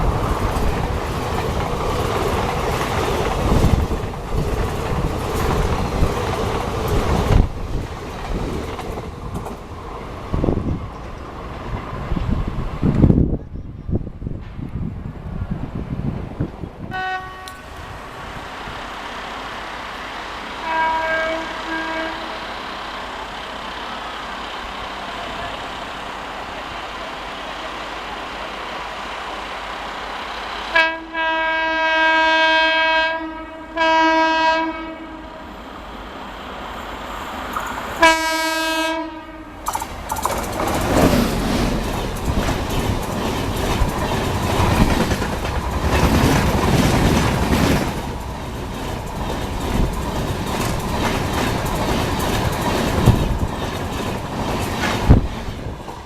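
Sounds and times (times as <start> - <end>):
train rumble: 0.0 - 56.0
train horn blasts: 16.9 - 17.7, 20.6 - 22.6, 30.7 - 35.6, 38.0 - 39.6.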